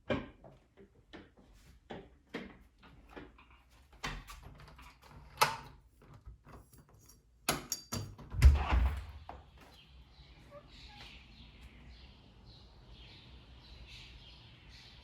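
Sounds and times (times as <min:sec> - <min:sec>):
door closing with heavy thud: 0:08.3 - 0:09.3.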